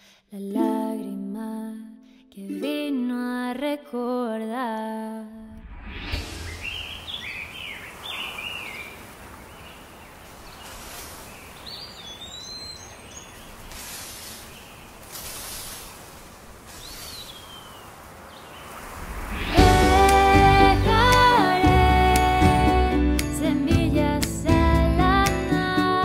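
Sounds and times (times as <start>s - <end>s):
bird chirps: 6.2s - 18.8s
steady hiss: 6.2s - 21.5s
loud music: 19.5s - 23.2s.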